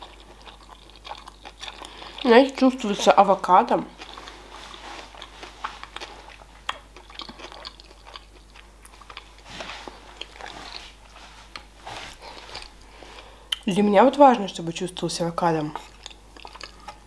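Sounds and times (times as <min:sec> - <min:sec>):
chewing with wet mouth clicks: 0:00.0 - 0:02.8, 0:04.0 - 0:04.4, 0:05.0 - 0:09.4, 0:10.2 - 0:10.8, 0:12.4 - 0:13.7, 0:15.8 - 0:17.0.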